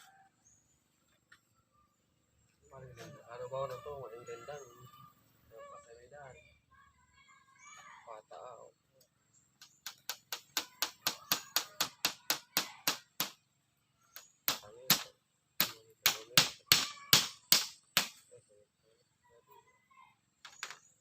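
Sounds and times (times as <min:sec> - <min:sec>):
hand tool striking blows: 0:09.7 - 0:13.4, 0:14.2 - 0:18.2.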